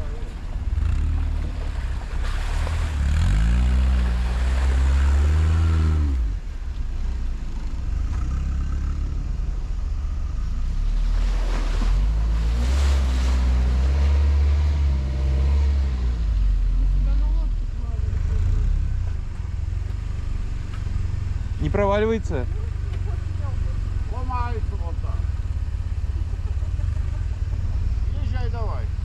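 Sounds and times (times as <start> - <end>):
quad bike engine revving: 0.0 - 6.4, 7.5 - 29.0.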